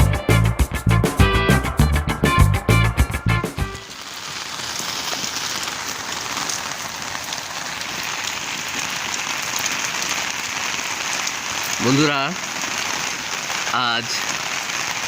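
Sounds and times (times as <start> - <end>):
intro music: 0.0 - 3.8
steady rain hissing: 3.7 - 15.0.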